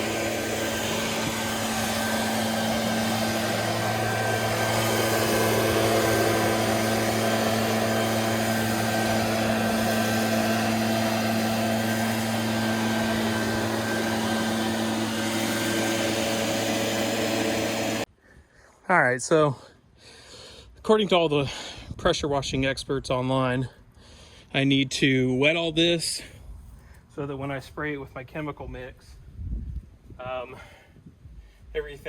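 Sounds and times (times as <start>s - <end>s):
leaf blower running: 0.0s - 18.1s.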